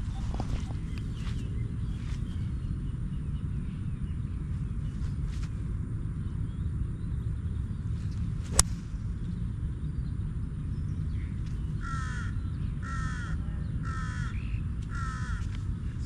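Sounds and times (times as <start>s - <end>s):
low rumble: 0.0s - 12.8s
crow cawing: 11.8s - 15.5s.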